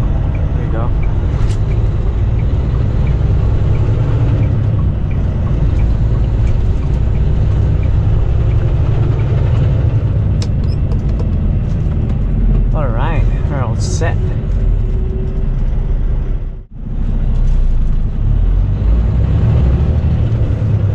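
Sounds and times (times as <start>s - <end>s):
turn signal ticking: 0.0s - 12.8s
diesel engine low rumble: 0.0s - 20.9s.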